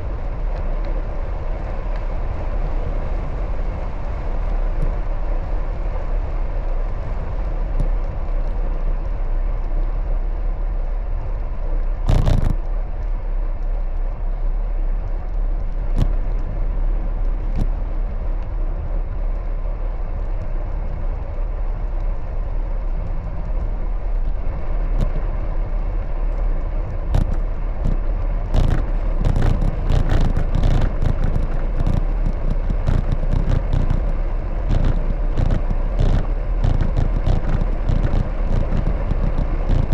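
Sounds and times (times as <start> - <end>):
bicycle rolling on road: 0.0 - 39.9
bicycle knocks and rattles: 11.9 - 14.3, 15.0 - 39.9.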